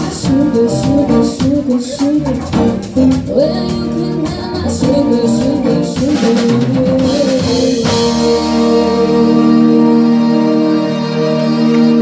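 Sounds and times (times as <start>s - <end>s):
drums: 0.0s - 12.0s
live band playing soul-rock: 0.0s - 12.0s
person singing: 0.0s - 12.0s.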